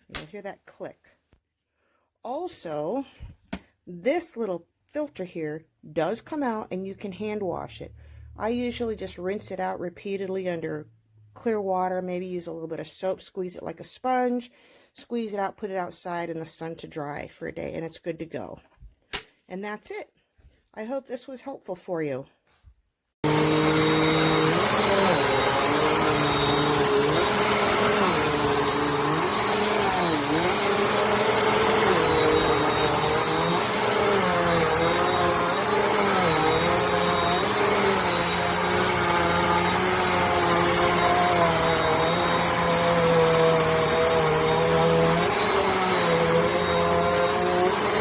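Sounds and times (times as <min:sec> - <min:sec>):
vacuum cleaner running: 0:23.2 - 0:48.0.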